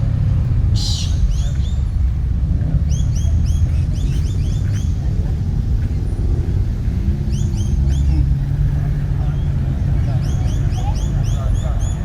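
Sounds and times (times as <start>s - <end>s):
car engine rumbling: 0.0s - 12.0s
bird chirping: 0.8s - 2.0s.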